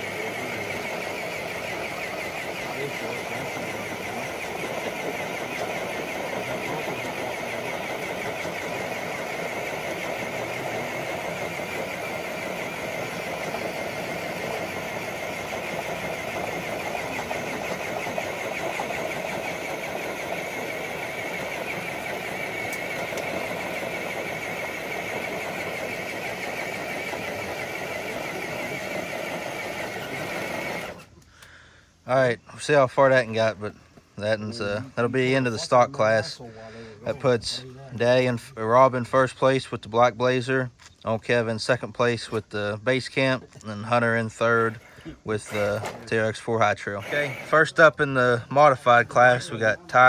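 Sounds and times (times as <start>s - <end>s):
electric motor and gearbox whining: 0.0s - 31.3s, 43.3s - 50.0s.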